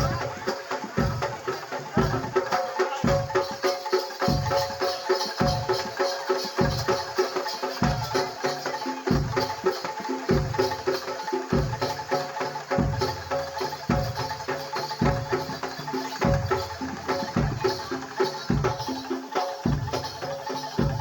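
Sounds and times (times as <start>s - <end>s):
deep drum beat: 0.0s - 4.8s, 9.0s - 21.0s
gamelan metal percussion ringing: 0.0s - 21.0s.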